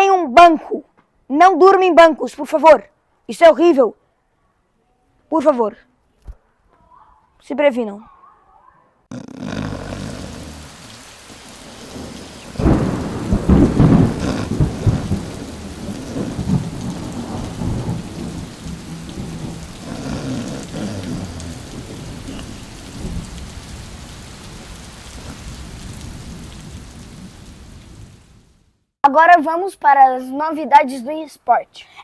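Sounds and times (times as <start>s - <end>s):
steady rain: 9.1s - 28.8s
thunder rumbling: 9.5s - 28.5s.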